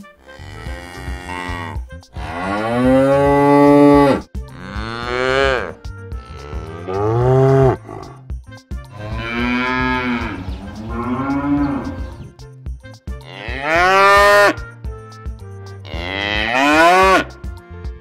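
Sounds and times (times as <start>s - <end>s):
cows mooing: 0.2s - 8.2s, 8.9s - 12.2s, 13.2s - 14.6s, 15.9s - 17.3s.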